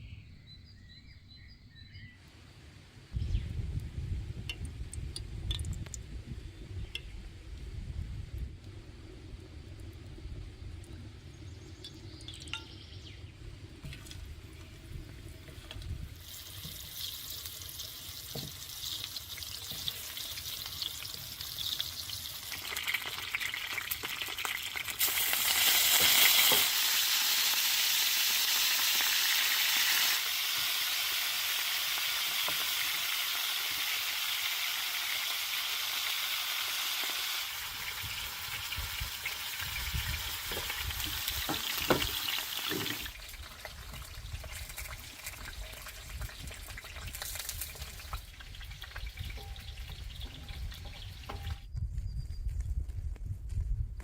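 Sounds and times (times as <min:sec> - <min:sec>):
food sizzling in hot oil: 0:13.6 - 0:51.6.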